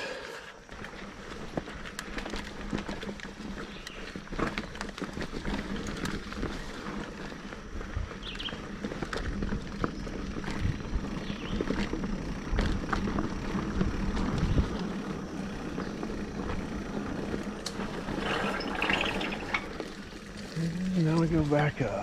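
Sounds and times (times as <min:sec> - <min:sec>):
bike tyres on wet dirt: 0:00.0 - 0:22.0
bike knocks and rattles: 0:00.7 - 0:20.6
wind rumble on microphone: 0:04.8 - 0:20.6.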